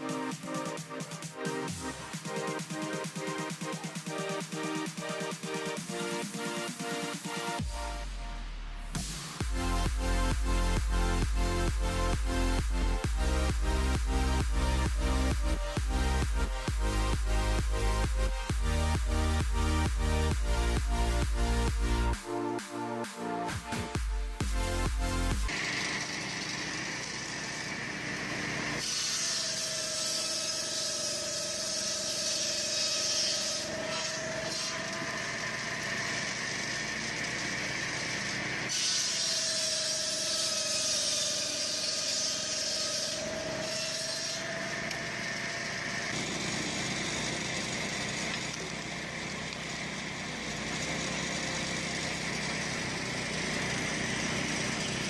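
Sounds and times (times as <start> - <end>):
power saw cutting wood: 0.0 - 55.0.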